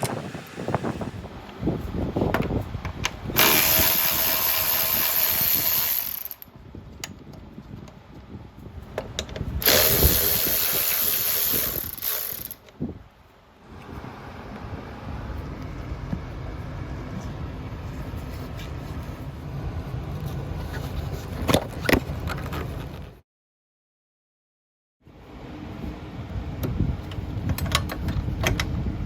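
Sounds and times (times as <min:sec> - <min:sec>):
electric ratchet running: 0:03.4 - 0:06.5, 0:09.6 - 0:12.6.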